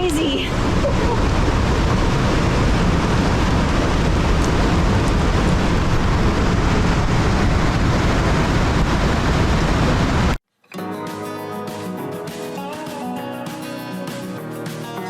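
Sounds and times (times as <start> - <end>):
waterfall roar: 0.0 - 10.4.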